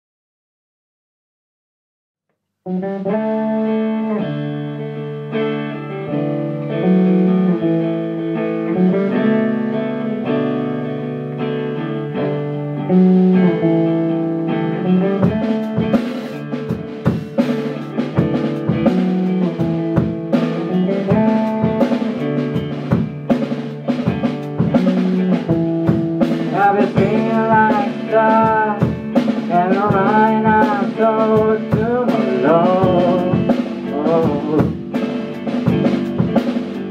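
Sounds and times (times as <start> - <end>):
drum kit: 2.7 - 36.9
sustained rock chords: 2.7 - 36.9
person singing: 26.2 - 35.0.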